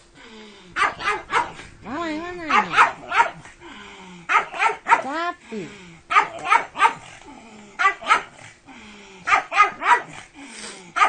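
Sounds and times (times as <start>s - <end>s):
dog barking: 0.8s - 1.6s, 2.5s - 3.5s, 4.3s - 5.2s, 6.1s - 7.1s, 7.8s - 8.4s, 9.3s - 10.2s
dog grumbling: 6.1s - 11.0s.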